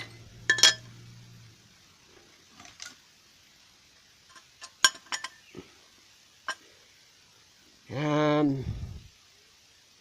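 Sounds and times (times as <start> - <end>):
metallic clink: 0.0 - 1.0, 4.3 - 5.4.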